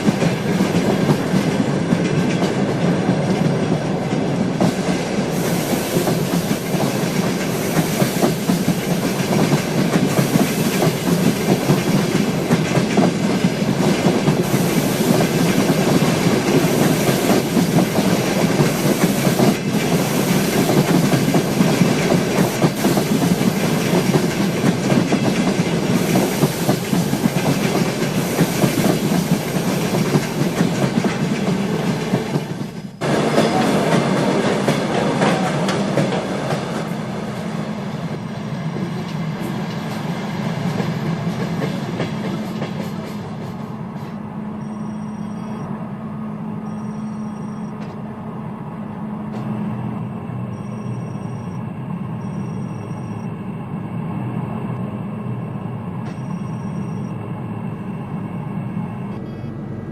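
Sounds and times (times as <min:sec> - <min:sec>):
train wheels clattering over rails: 0:00.0 - 0:44.2.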